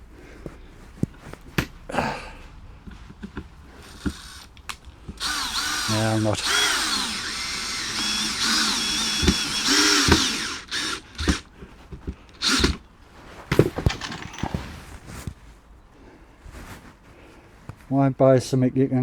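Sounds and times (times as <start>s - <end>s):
handling knocks and clicks: 0.4s - 1.9s, 2.5s - 15.5s
power drill driving screws: 3.3s - 12.9s.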